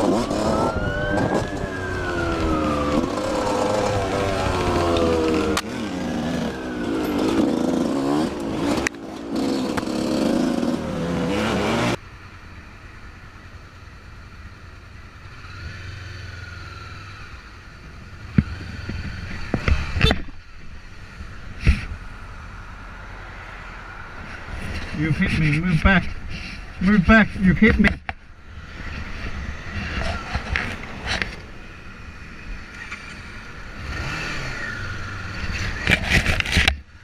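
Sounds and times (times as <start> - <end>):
siren wailing: 0.0 - 5.6
steady engine hum: 0.0 - 37.0
vehicle noise: 0.0 - 37.0.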